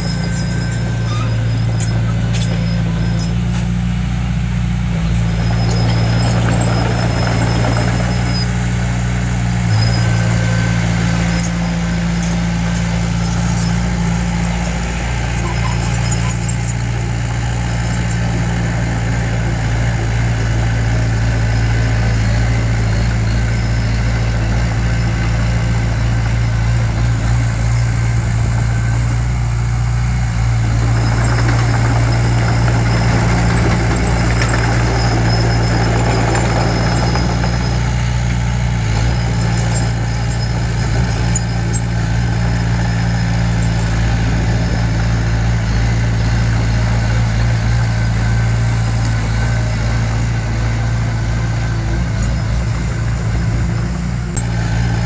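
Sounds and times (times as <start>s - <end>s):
diesel engine of heavy machinery: 0.0s - 55.0s.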